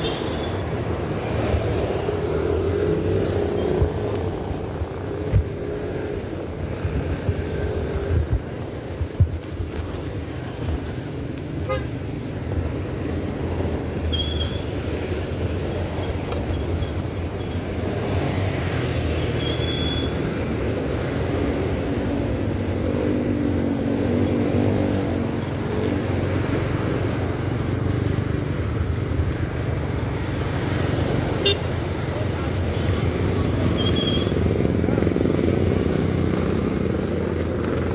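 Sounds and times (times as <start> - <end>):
road traffic passing: 0.0 - 37.9
short high squeaks: 14.1 - 14.8, 19.3 - 20.2, 33.7 - 34.4.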